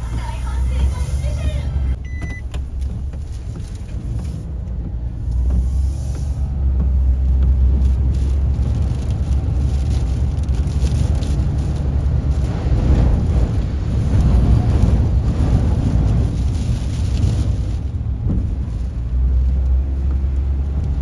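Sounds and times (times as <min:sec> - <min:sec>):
strong wind gusting: 0:09.2 - 0:19.3.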